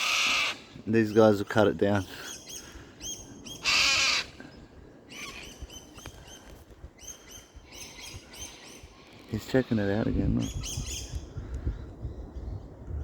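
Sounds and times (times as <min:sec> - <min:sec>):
harsh bird squawk: 0:00.0 - 0:01.3, 0:02.3 - 0:04.4, 0:05.1 - 0:06.0
birds chirping: 0:00.0 - 0:12.8.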